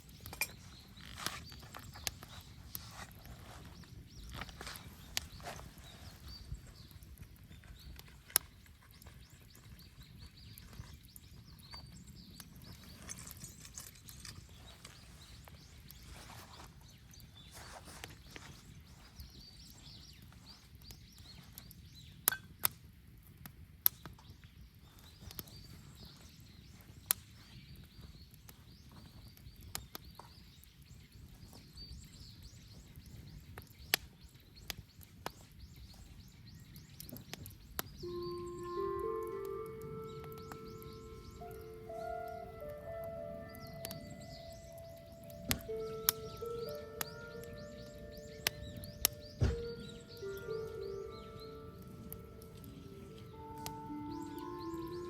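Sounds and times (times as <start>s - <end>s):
burning wood popping: 0.0s - 55.0s
bonfire rumble: 35.5s - 55.0s.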